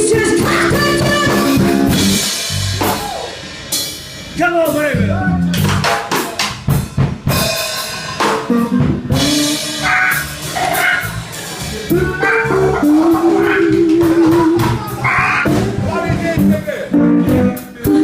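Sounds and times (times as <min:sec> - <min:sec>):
drum hits: 0:00.0 - 0:03.7, 0:05.5 - 0:17.5
electric guitar notes: 0:00.0 - 0:03.8, 0:08.1 - 0:18.0
electric blues band playing: 0:00.0 - 0:18.0.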